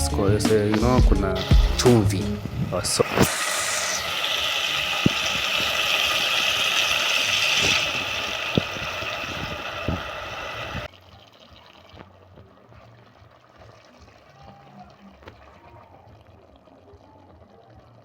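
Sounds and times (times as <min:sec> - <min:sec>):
water pouring into container: 0:01.3 - 0:18.0.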